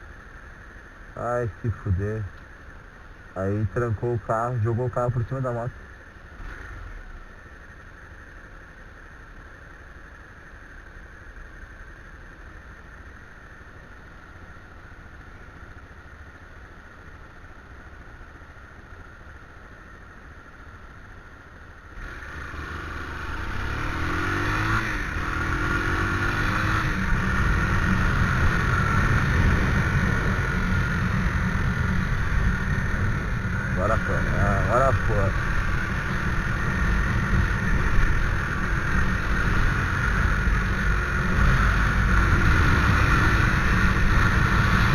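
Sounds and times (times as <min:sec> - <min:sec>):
motorcycle engine accelerating: 0:22.0 - 0:44.9.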